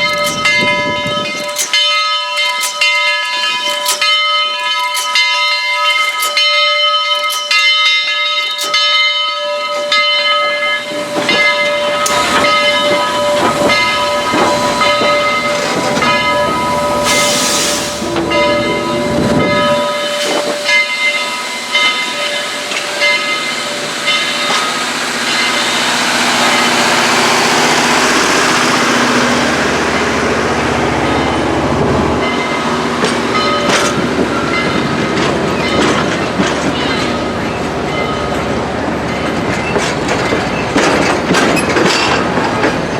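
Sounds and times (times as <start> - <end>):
locomotive bell ringing: 0.0 - 42.9
steam hiss: 13.6 - 29.7.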